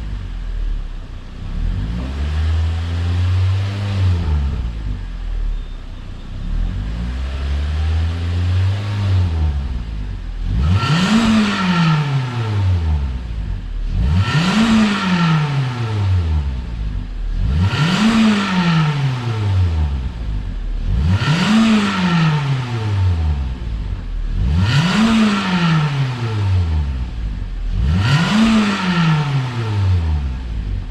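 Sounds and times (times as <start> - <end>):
car engine revving: 0.0 - 5.6, 6.3 - 30.9.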